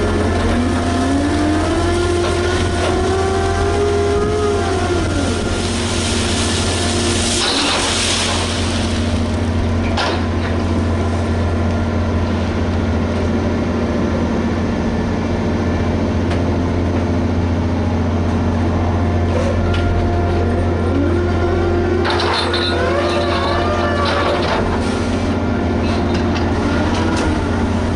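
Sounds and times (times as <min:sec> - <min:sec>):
diesel engine deep hum: 0:00.0 - 0:27.9
wavering metallic squeals: 0:19.6 - 0:24.7.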